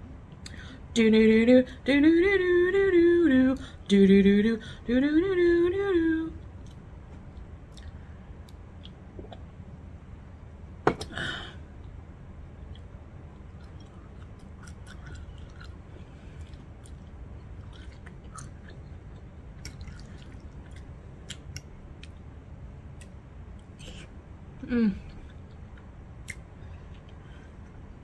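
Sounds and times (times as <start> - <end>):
low hum: 0.0 - 28.0
person chewing: 6.6 - 9.5, 13.4 - 22.3.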